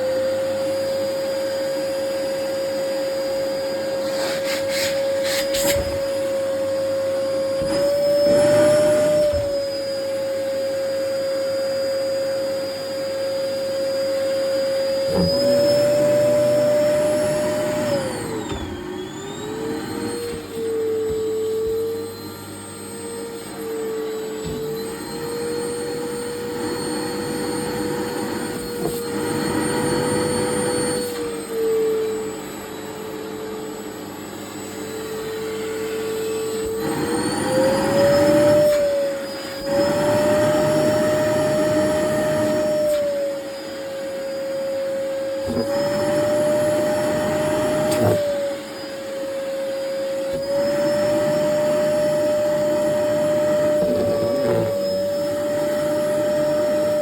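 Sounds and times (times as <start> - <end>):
vacuum cleaner motor whining: 0.0 - 57.0
suction rushing over fabric: 3.9 - 6.7, 50.6 - 57.0.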